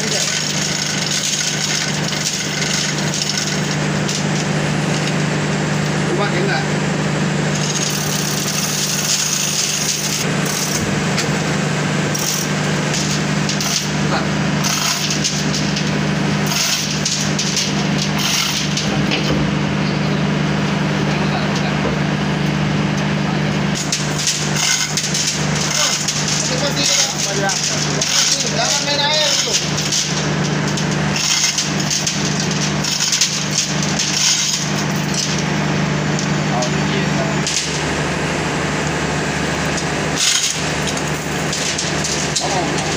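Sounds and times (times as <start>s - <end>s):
machinery humming: 0.0s - 42.9s
rasping scraping noise: 16.4s - 19.2s.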